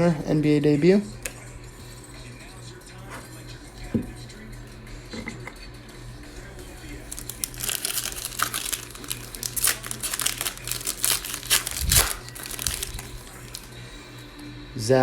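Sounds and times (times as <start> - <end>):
plastic wrapper tearing and crinkling: 6.8 - 13.7.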